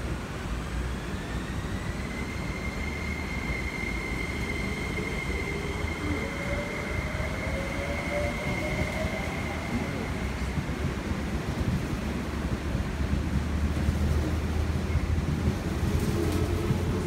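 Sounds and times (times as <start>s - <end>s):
train rumble: 0.0s - 17.0s
high whine rising in pitch: 0.8s - 10.6s.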